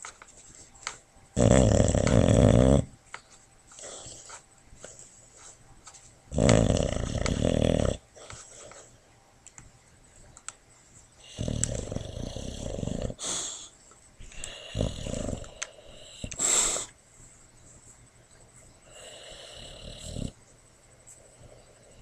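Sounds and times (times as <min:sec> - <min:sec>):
dog snoring: 0:01.4 - 0:03.0, 0:06.3 - 0:08.8, 0:11.2 - 0:13.6, 0:14.3 - 0:16.9, 0:18.9 - 0:20.4.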